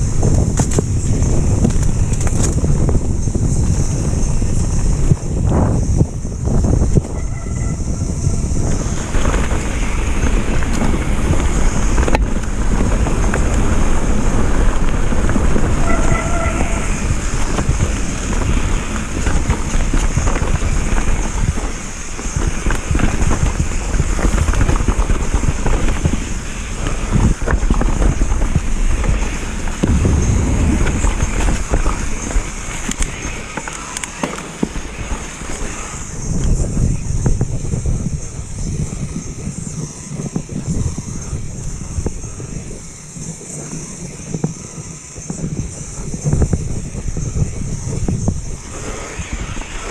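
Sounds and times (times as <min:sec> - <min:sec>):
bike tyres rattling on rough trail: 0:00.0 - 0:49.9
wind buffeting microphone: 0:00.0 - 0:49.9
brief squeal: 0:07.0 - 0:08.4.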